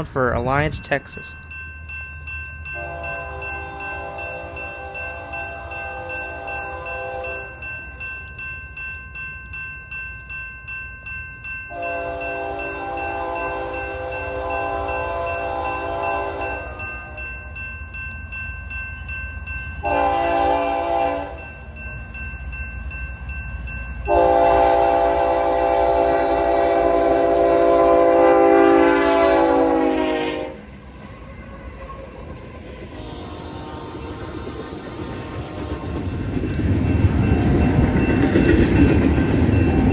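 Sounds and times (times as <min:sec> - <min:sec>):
low rumble of train: 0:00.0 - 0:39.9
locomotive air horn: 0:02.8 - 0:07.5, 0:11.8 - 0:16.8, 0:19.8 - 0:21.4, 0:24.1 - 0:30.7, 0:33.0 - 0:34.6.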